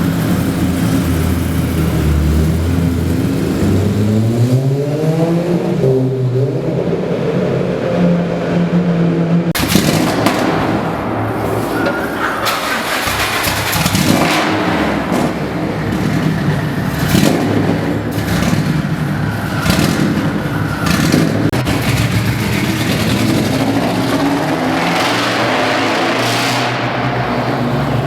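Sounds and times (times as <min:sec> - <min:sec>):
car engine revving: 0:00.0 - 0:28.0
sharp exhaust cracks: 0:09.6 - 0:28.0.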